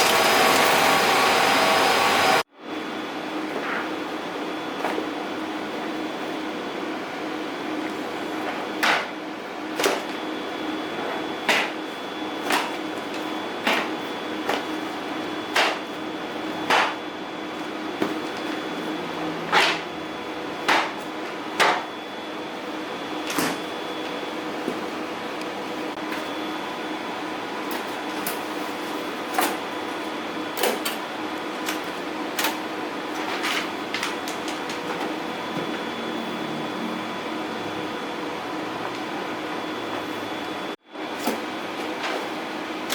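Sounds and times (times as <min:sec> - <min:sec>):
printer humming with high whine: 0:00.0 - 0:42.9
sheets swishing through printer: 0:18.1 - 0:20.0.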